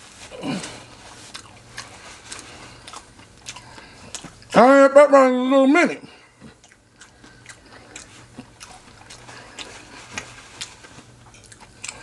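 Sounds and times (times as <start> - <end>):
chewing crunchy food: 0.1 - 4.6, 6.1 - 12.0.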